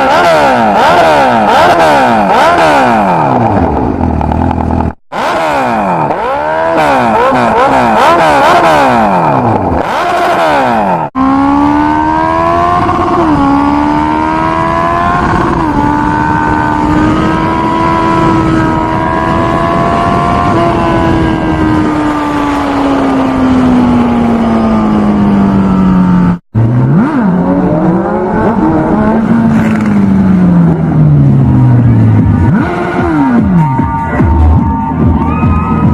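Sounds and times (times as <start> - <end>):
motorcycle engine at high revs: 0.0 - 34.5.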